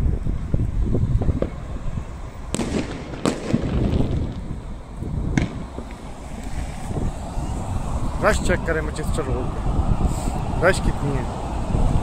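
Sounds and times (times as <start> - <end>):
steady low rumble: 0.0 - 12.0
fireworks bangs: 2.4 - 8.4.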